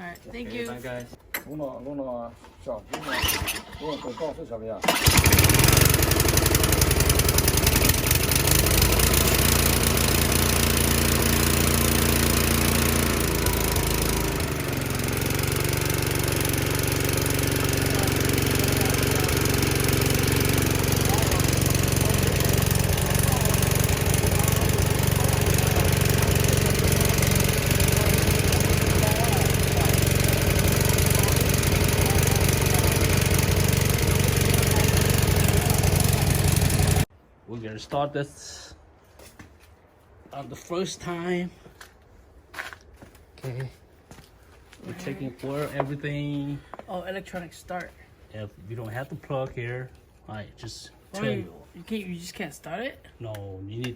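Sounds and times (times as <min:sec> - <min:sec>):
engine running: 0:02.9 - 0:04.2, 0:04.8 - 0:37.1.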